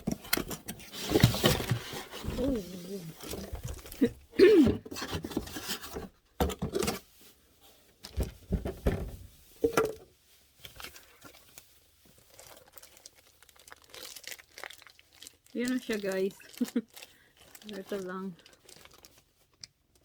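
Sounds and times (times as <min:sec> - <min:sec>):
packaging rustling and tearing: 0:00.0 - 0:04.2, 0:10.5 - 0:20.0.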